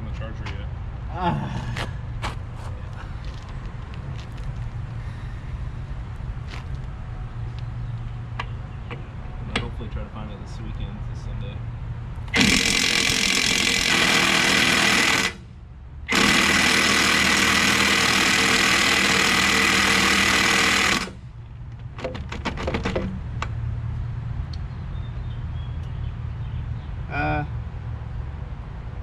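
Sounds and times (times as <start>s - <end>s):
impact wrench hammering: 12.3s - 15.4s, 16.1s - 21.2s.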